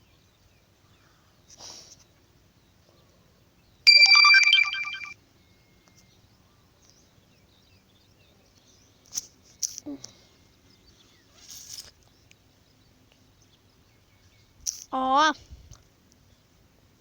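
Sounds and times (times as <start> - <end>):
smartphone notification tone: 3.9 - 5.1.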